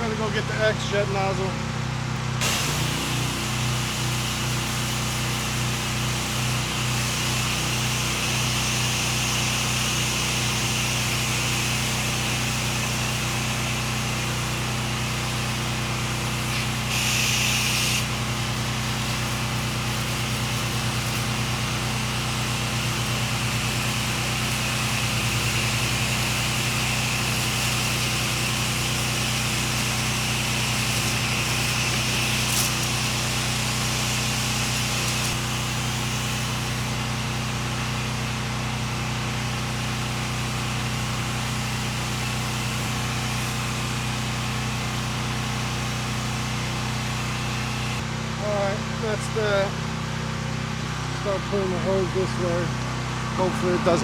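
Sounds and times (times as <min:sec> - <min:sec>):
pressure washer engine running: 0:00.0 - 0:54.0
water spray hiss: 0:02.4 - 0:38.2.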